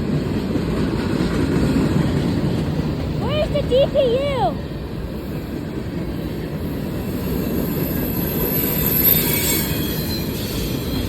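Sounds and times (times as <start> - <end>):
train wheels rumbling on rail: 0.0 - 11.0
high-pitched wheel squeal: 7.1 - 11.0.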